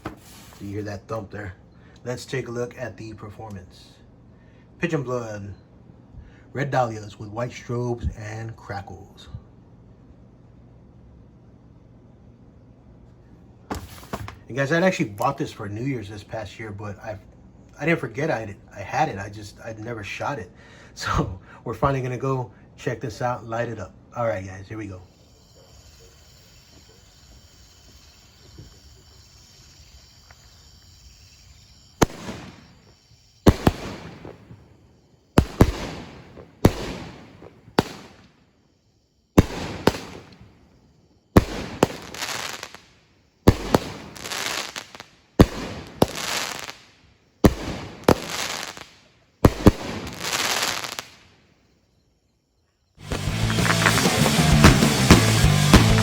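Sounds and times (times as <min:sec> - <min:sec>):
firework bangs with crackling: 0:00.0 - 0:00.8, 0:13.7 - 0:14.5, 0:31.8 - 0:34.7, 0:35.4 - 0:38.4, 0:39.4 - 0:40.5, 0:41.4 - 0:42.9, 0:43.5 - 0:51.3, 0:53.0 - 0:56.0.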